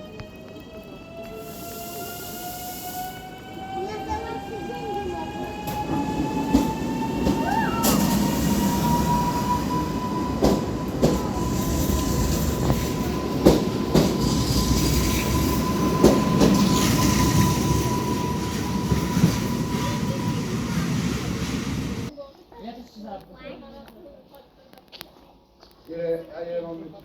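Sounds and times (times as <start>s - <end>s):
train rumbling on track: 0.0s - 22.1s
wheels knocking on rail joints: 3.4s - 22.1s.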